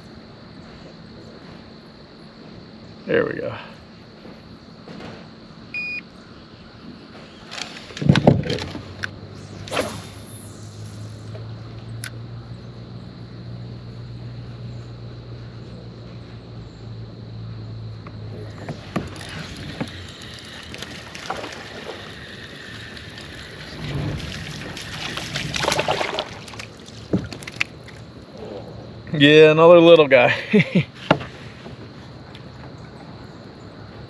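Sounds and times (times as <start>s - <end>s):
low hum: 5.5s - 29.2s
water splashing: 18.4s - 28.2s.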